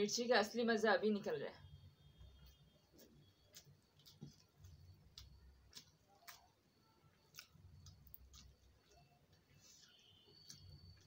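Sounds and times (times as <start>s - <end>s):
mouth clicks and smacks chewing: 3.5s - 11.0s.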